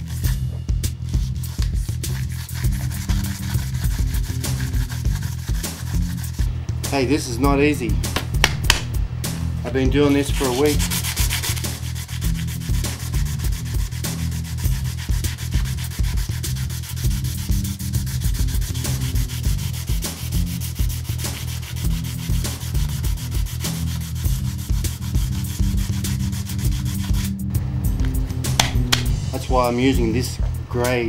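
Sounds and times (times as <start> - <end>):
sandpaper rubbing on drum shell: 0.0 - 6.5, 10.2 - 27.4.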